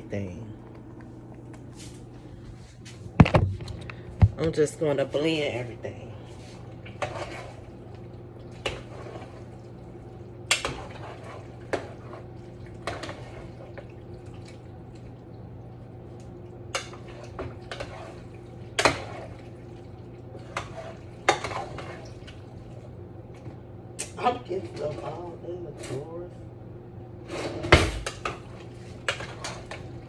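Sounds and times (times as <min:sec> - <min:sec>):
steady low hum: 0:00.0 - 0:30.0
metal spoon stirring in a pot: 0:06.9 - 0:07.6, 0:16.8 - 0:19.5, 0:20.4 - 0:22.2.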